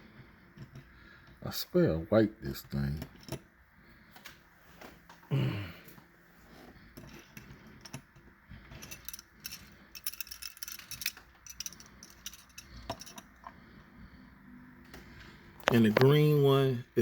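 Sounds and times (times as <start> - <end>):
toy car clicking and rattling: 8.8 - 13.3.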